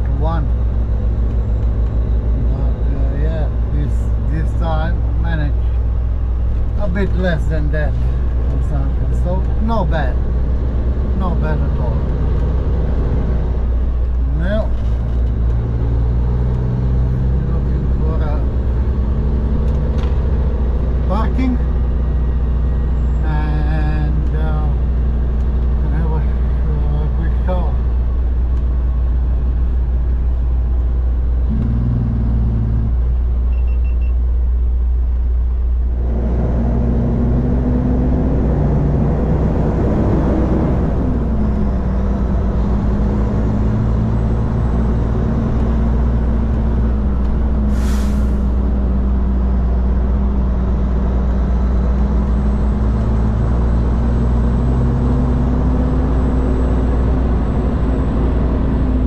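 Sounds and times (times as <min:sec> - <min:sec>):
diesel truck engine rumble: 0:00.0 - 0:59.0
air brake hiss: 0:47.7 - 0:48.5.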